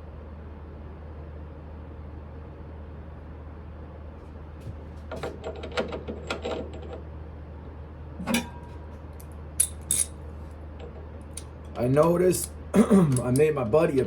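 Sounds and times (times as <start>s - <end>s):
steady low hum: 0.0s - 14.0s
metal tools clinking: 8.2s - 8.9s, 9.6s - 10.2s.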